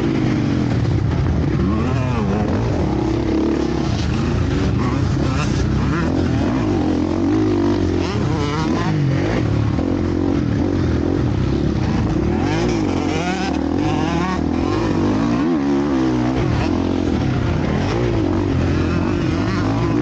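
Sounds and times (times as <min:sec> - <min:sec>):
motocross bike engines revving: 0:00.0 - 0:20.0.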